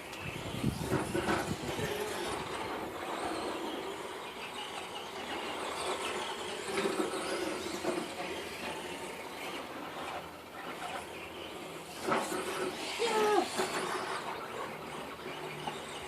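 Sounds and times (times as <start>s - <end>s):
toy car motor whining: 0.0s - 16.0s.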